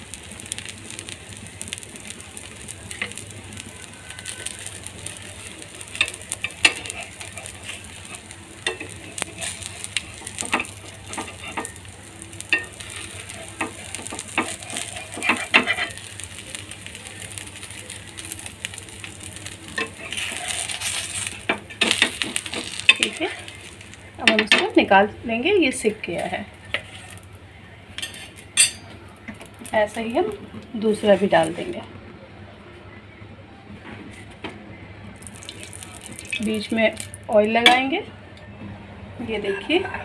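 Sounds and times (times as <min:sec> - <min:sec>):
pancake sizzling in a pan: 0:00.0 - 0:25.1, 0:25.7 - 0:27.4, 0:35.2 - 0:37.8
metal spatula scraping a pan: 0:05.8 - 0:16.8, 0:18.2 - 0:23.8, 0:26.2 - 0:27.2, 0:28.0 - 0:28.8.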